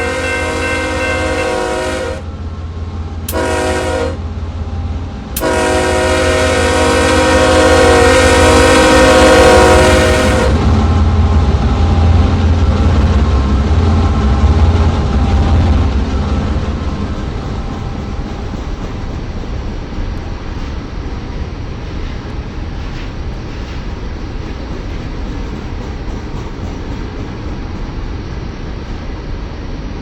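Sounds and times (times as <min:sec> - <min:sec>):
locomotive air horn chord: 0:00.0 - 0:02.3, 0:03.3 - 0:04.3, 0:05.4 - 0:10.7
train rumble and rail noise: 0:00.0 - 0:30.0.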